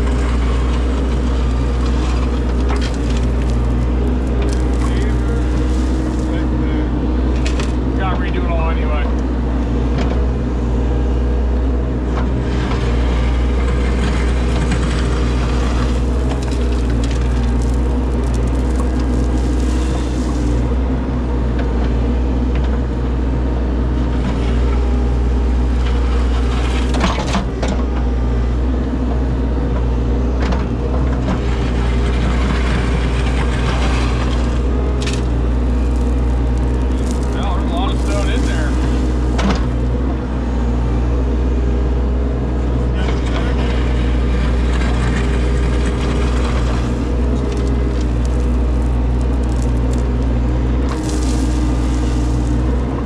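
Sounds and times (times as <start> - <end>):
stone and dirt scraping: 0.0 - 8.0, 12.2 - 20.8, 31.3 - 40.1, 43.0 - 53.0
diesel engine running: 0.0 - 53.0.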